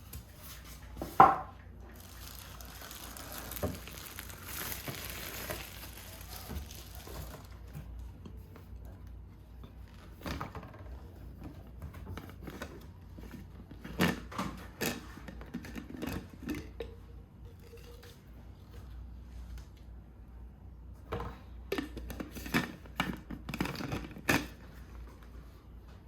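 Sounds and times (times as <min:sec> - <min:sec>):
food frying sizzle: 0:02.0 - 0:07.4.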